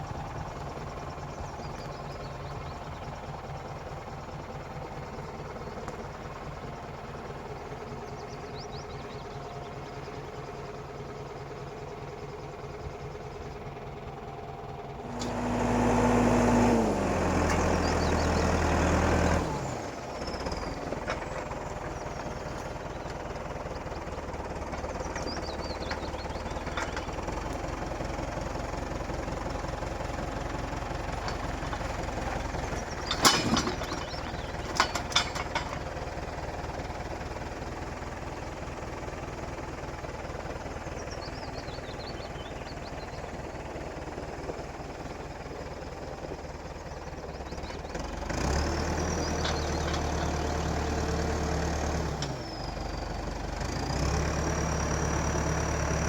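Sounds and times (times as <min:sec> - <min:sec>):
engine revving: 0:15.0 - 0:22.9, 0:47.9 - 0:56.0.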